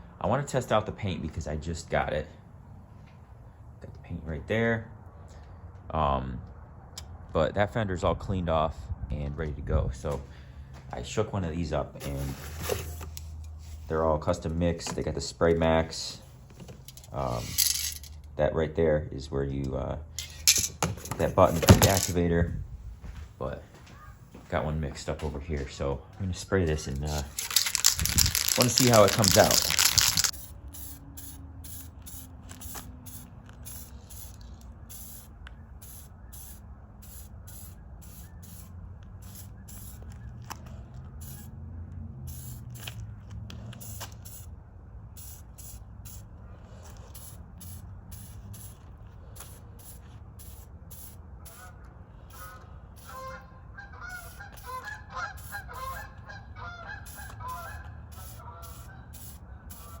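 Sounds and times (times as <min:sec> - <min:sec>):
spray can hissing: 0:21.4 - 0:22.2, 0:27.2 - 0:40.0, 0:41.2 - 0:41.5, 0:42.3 - 0:43.0, 0:43.8 - 0:44.5, 0:45.2 - 0:46.2, 0:47.1 - 0:48.8, 0:49.4 - 0:51.7, 0:52.4 - 0:53.2, 0:54.2 - 0:54.8, 0:55.4 - 0:56.0, 0:57.1 - 1:00.0
honking calls: 0:52.4 - 0:59.1.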